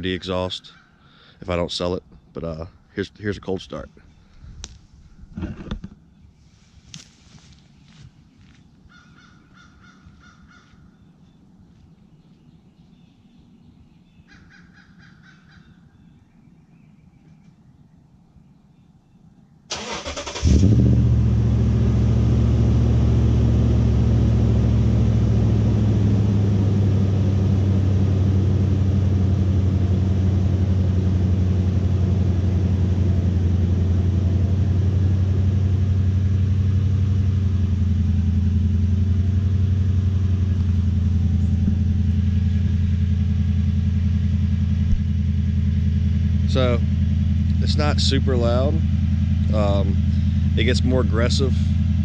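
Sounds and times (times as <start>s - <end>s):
engine idling: 19.7s - 52.0s.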